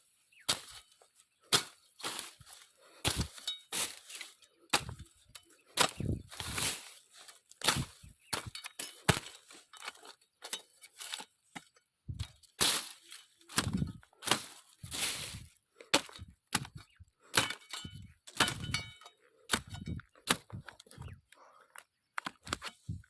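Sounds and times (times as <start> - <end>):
branches cracking and snapping: 1.6 - 18.9.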